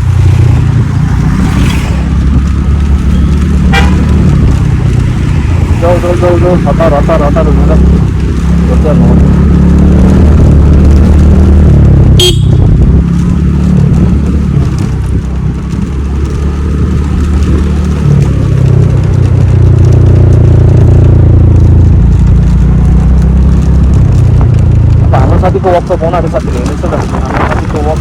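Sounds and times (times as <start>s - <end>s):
wind buffeting microphone: 0.0s - 6.7s, 11.8s - 19.8s, 26.2s - 28.0s
scooter engine: 0.0s - 28.0s.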